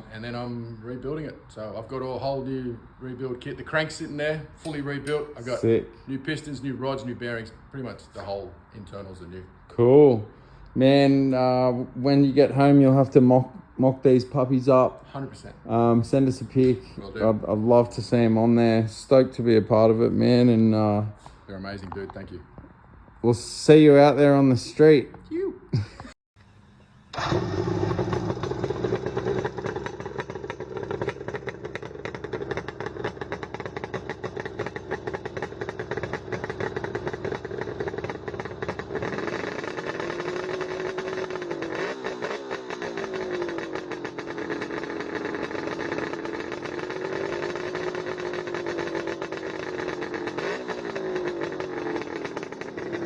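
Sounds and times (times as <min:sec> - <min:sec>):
motorcycle engine revving: 0:15.6 - 0:21.1, 0:27.1 - 0:53.0.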